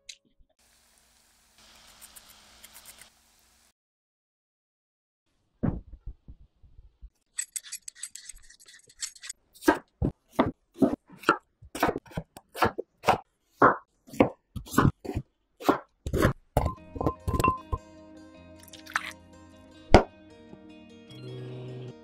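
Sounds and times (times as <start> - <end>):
knife slicing potato on board: 9.6 - 16.4.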